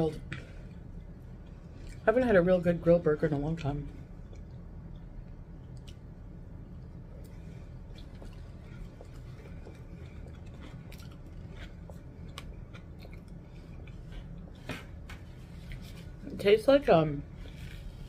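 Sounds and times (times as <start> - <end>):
person chewing with mouth clicks: 6.8 - 14.4.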